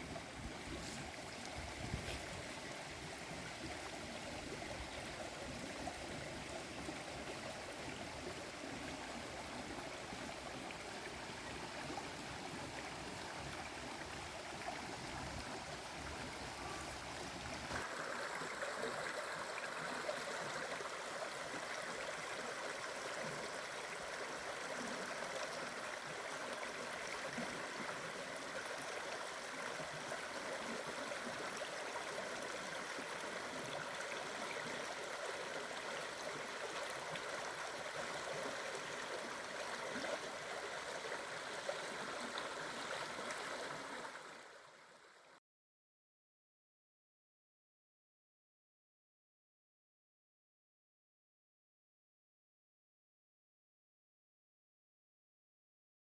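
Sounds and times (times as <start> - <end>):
stream rushing: 0.0 - 44.6.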